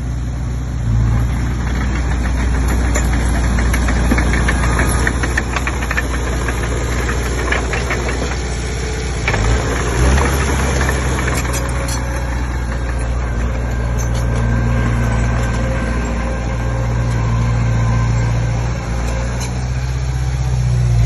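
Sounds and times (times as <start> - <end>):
bulldozer diesel engine knocking: 1.0 - 20.1.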